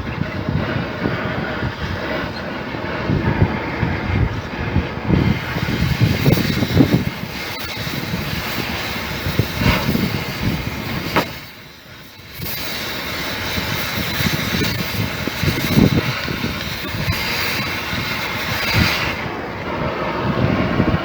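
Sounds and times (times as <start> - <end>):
mechanical rumble with hiss: 0.0 - 21.0
sharp click: 11.1 - 11.4.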